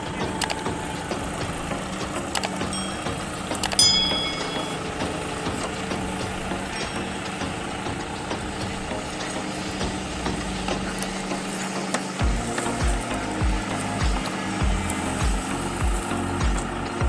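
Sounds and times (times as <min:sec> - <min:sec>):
diesel engine running: 0:00.0 - 0:17.0
deep rumble: 0:12.2 - 0:17.0.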